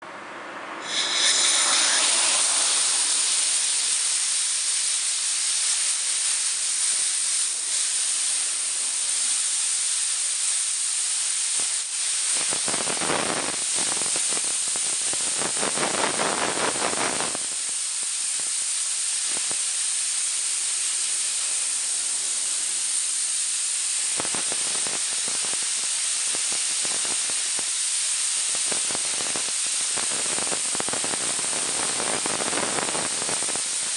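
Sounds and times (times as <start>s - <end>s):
compressed air blow gun hissing: 0.8s - 33.9s.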